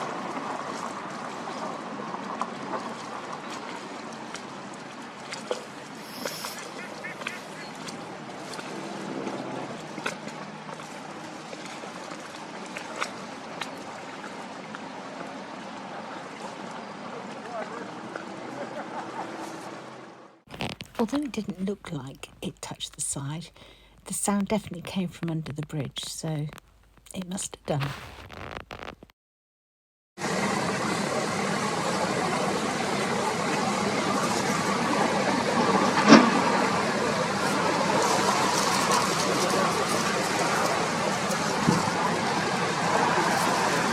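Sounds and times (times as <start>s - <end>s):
boat engine humming low: 0.0s - 27.0s, 30.2s - 43.9s
boat engine running: 5.4s - 13.5s
brief sharp sound: 27.6s - 29.0s
river water rushing: 30.2s - 43.9s.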